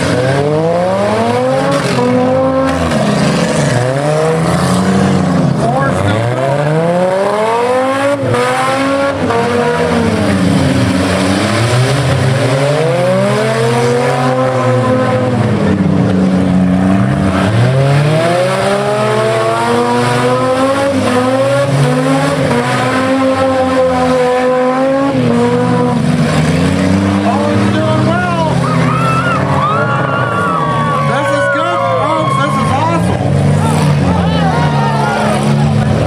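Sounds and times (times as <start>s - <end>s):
car engines revving: 0.0s - 36.0s.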